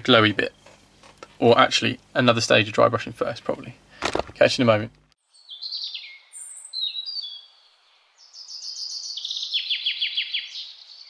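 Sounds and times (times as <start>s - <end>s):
songbirds singing: 5.2s - 11.0s
bird trill: 5.3s - 11.0s.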